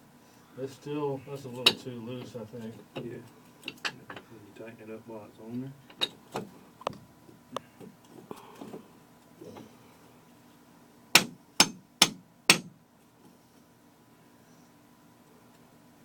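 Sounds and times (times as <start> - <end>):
hammer tapping on metal pipe: 11.2 - 12.7.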